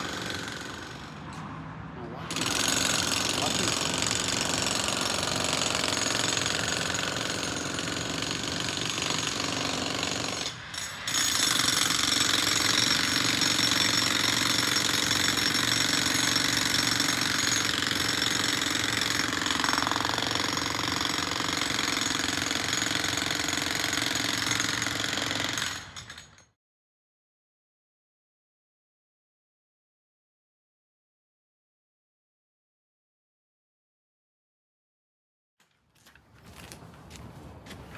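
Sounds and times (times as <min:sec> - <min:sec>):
jackhammer hammering: 0:00.0 - 0:01.4, 0:02.2 - 0:26.5.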